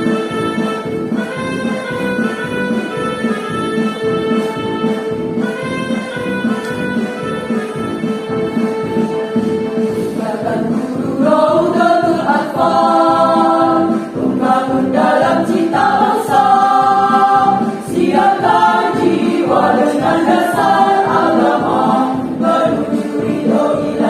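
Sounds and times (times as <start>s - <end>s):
instrumental accompaniment with beat: 0.0s - 24.0s
choir singing a march: 9.4s - 24.0s.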